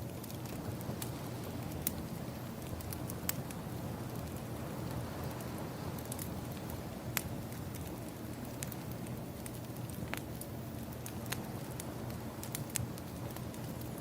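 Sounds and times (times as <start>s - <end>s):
burning wood popping: 0.0s - 14.0s
ocean waves: 0.6s - 7.5s.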